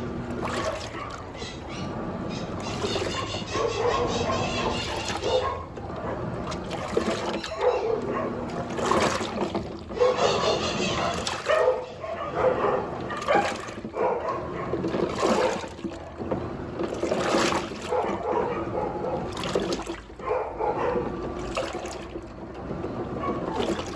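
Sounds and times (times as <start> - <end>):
washing machine water sloshing: 0.0 - 23.9.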